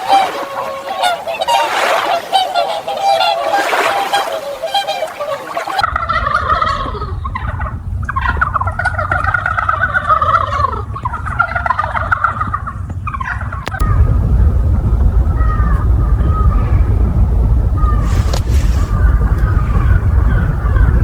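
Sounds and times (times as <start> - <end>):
fowl warbling calls: 0.0 - 13.9, 15.0 - 21.0
steady low rumble: 5.8 - 21.0.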